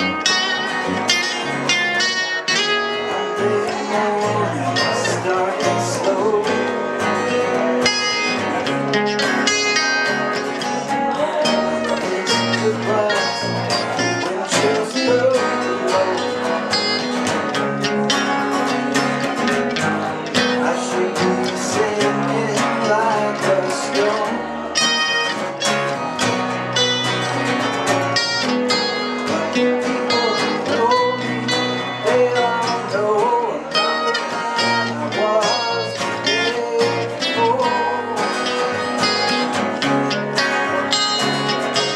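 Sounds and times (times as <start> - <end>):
acoustic guitar and dobro: 0.0 - 41.9.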